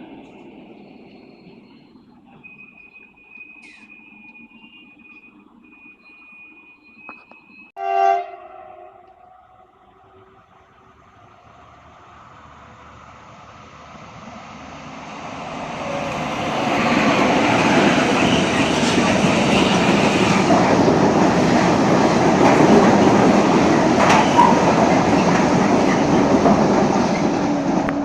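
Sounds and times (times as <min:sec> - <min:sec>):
train rumbling past: 0:00.0 - 0:28.0
sharp clicks of train wheels: 0:15.0 - 0:28.0.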